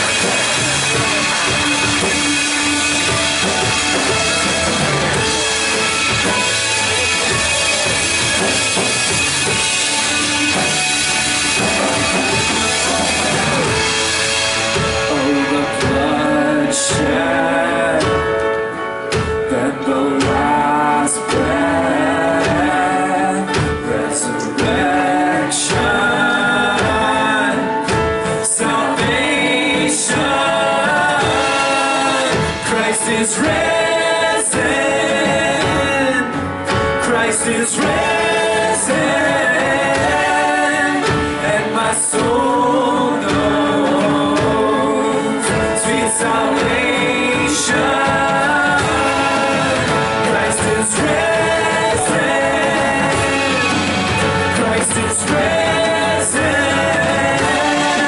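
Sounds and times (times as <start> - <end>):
sharp drum hits: 0.0 - 16.3
singers holding long notes: 0.0 - 58.0
worship band playing: 0.0 - 58.0.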